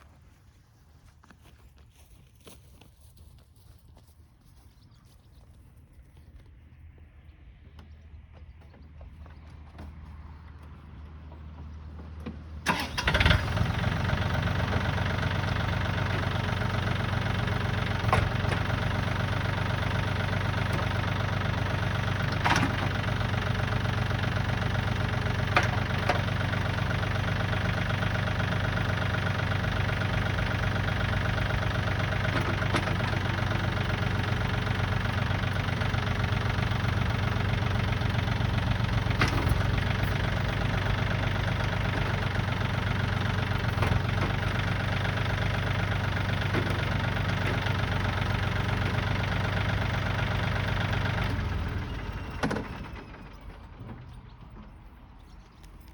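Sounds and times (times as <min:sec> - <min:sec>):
diesel engine idling: 0:06.2 - 0:55.9
starter motor cranking: 0:12.7 - 0:53.4.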